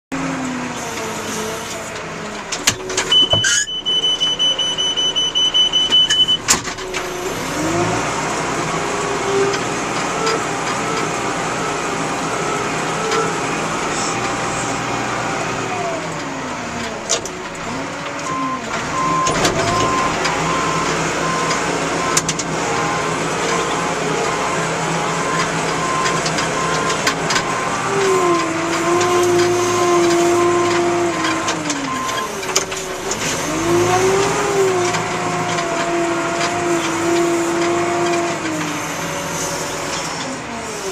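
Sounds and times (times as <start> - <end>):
diesel engine revving: 0.1 - 40.9
reversing alarm beeping: 3.1 - 6.5, 18.3 - 22.3.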